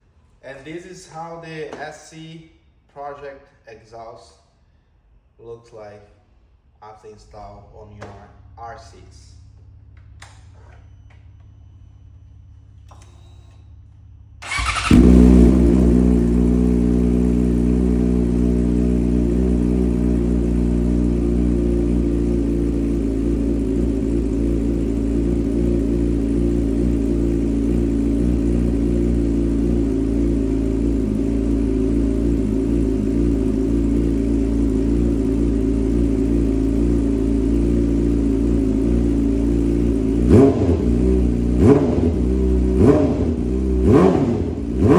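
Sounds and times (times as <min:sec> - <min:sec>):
motorcycle engine starting and idling: 0:08.8 - 0:44.9.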